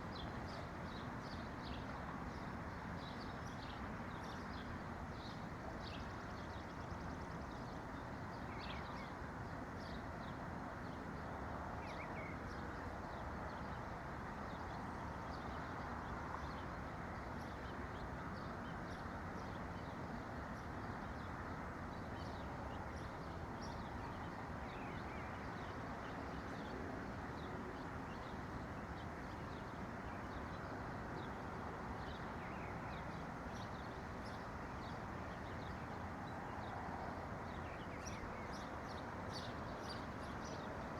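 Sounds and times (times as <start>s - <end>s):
songbirds chirping: 14.5s - 40.9s.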